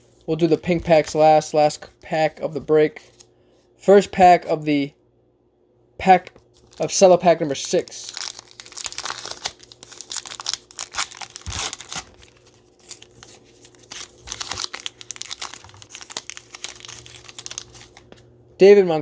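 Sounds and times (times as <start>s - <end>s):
cellophane wrapper tearing crinkling: 6.5s - 18.2s.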